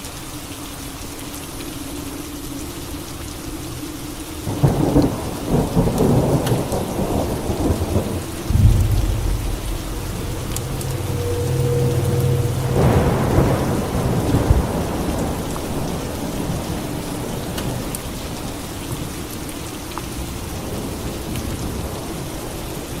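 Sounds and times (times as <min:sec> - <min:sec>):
steady rain falling: 0:00.0 - 0:23.0
deep low rumble of thunder: 0:04.5 - 0:16.7
thunderclap crackling and rolling: 0:04.6 - 0:17.8.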